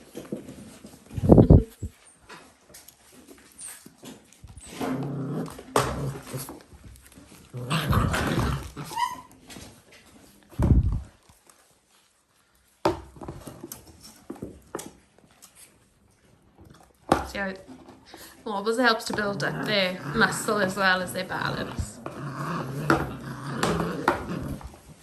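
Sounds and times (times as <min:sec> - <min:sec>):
puppies growling: 0:04.2 - 0:09.7, 0:17.8 - 0:25.0
knocks and thumps: 0:10.6 - 0:11.1.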